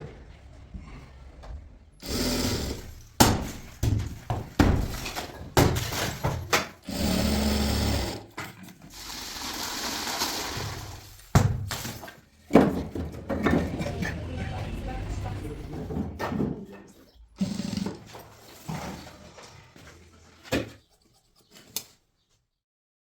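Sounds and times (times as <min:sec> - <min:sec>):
steady machine noise: 0:02.0 - 0:03.3, 0:06.8 - 0:08.3, 0:13.8 - 0:16.2
sharp knocks and crashes: 0:02.9 - 0:06.8, 0:11.2 - 0:14.0.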